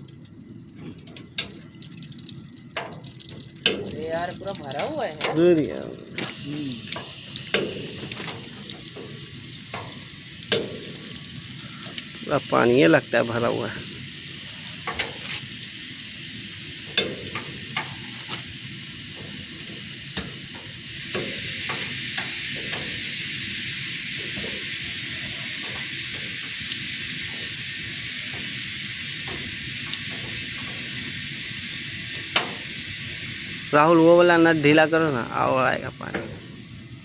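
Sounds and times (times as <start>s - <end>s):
compressed air hissing and spluttering: 3.6s - 36.6s.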